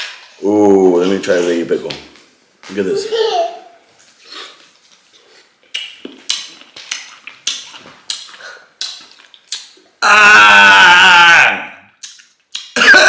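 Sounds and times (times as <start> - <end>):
loud drawn-out vocal cry: 10.0 - 11.9.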